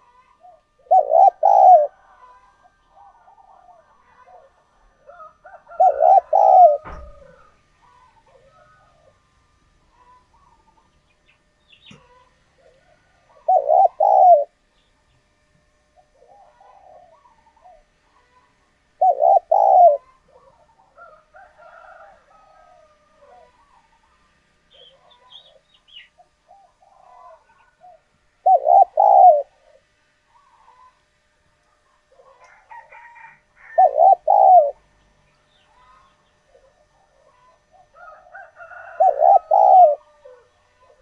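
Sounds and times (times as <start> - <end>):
dove cooing: 0.0 - 11.0, 11.8 - 14.7, 15.9 - 31.0, 31.8 - 35.1, 35.7 - 41.0
other birds chirping: 0.0 - 15.3, 15.9 - 21.0, 23.5 - 31.1, 31.9 - 41.0.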